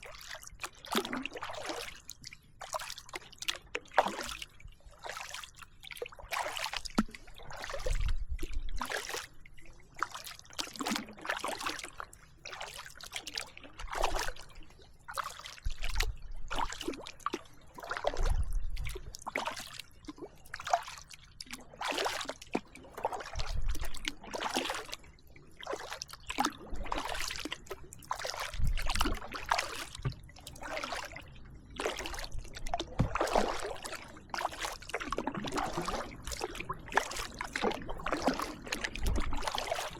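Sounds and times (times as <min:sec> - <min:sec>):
paddle blades splashing water: 0:00.0 - 0:39.9.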